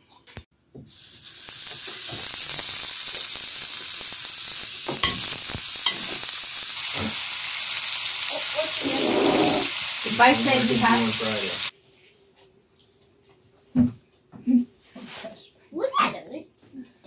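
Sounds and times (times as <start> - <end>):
meatballs sizzling in oil: 0.8 - 11.7.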